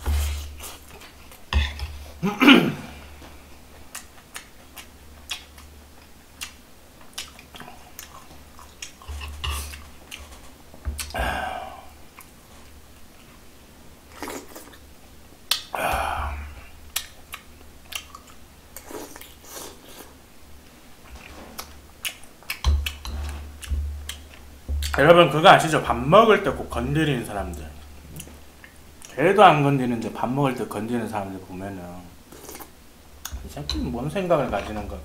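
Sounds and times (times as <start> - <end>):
steady low hum: 0.0 - 14.1, 15.0 - 18.8, 20.2 - 29.1
man chewing and lip-smacking: 3.7 - 11.2, 14.1 - 14.8, 15.4 - 15.8, 16.6 - 20.1, 21.1 - 25.0.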